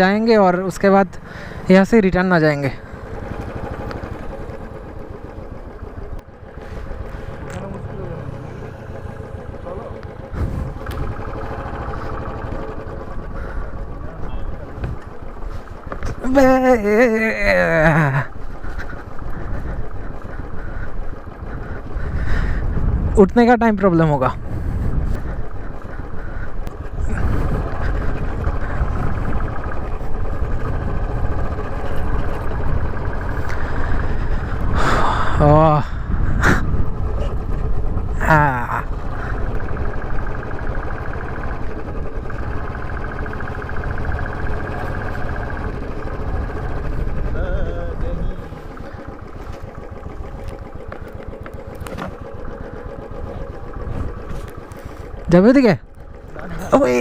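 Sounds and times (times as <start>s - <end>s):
motorcycle running: 0.0s - 57.0s
wind rumble on microphone: 10.3s - 11.3s, 18.6s - 23.4s, 24.2s - 40.3s.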